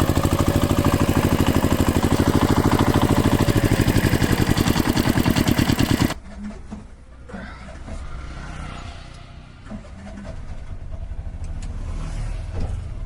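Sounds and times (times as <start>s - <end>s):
vehicle engine running: 0.0s - 6.2s.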